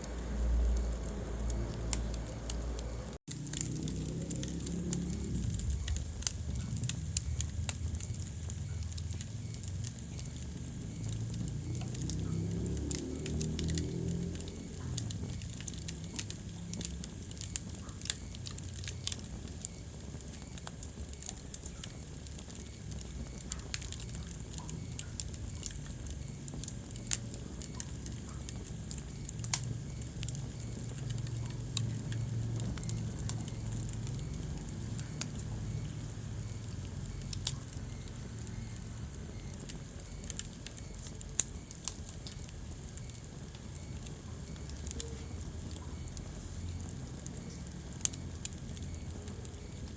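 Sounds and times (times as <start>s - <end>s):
low rumble: 0.0s - 17.8s
fire crackling in a fireplace: 0.0s - 49.9s.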